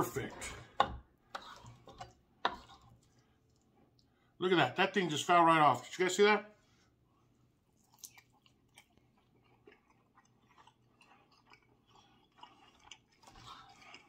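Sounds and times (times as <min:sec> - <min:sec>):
knife and fork on wooden board: 0:00.0 - 0:03.0
chewing food: 0:07.1 - 0:14.0.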